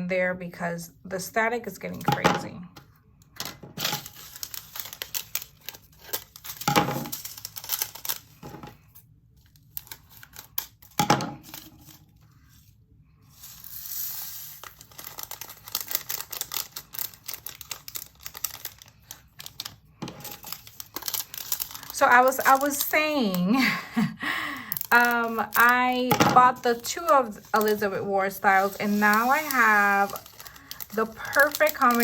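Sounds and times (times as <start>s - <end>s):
plastic bags crinkling: 3.7s - 12.6s, 13.4s - 23.9s, 24.5s - 32.0s
beads rattling in plastic containers: 19.5s - 23.5s, 24.7s - 32.0s.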